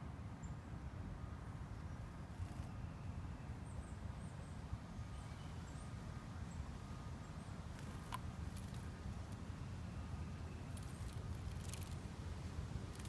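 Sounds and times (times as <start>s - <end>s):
small songbirds chirping: 1.5s - 12.0s.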